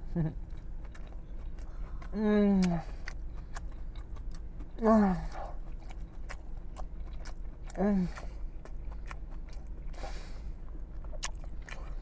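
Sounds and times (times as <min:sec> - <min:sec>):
man chewing with wet smacks: 0:00.0 - 0:12.0
man humming mmm: 0:07.8 - 0:08.2.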